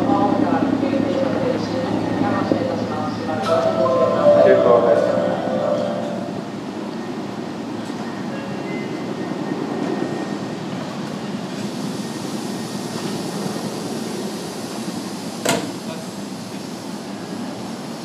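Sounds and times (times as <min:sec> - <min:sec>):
train air-conditioning hum and hiss: 0:09.8 - 0:18.0.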